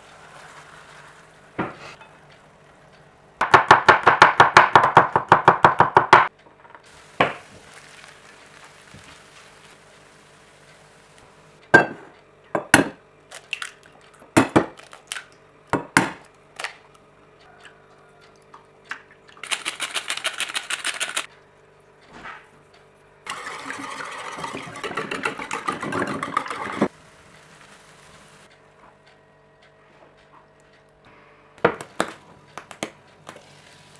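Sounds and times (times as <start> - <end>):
utensils and dishes clattering: 23.3 - 26.9.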